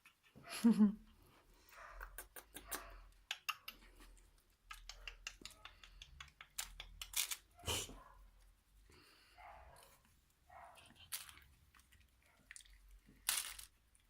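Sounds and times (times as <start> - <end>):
puppies clicking and scratching: 1.8 - 7.6.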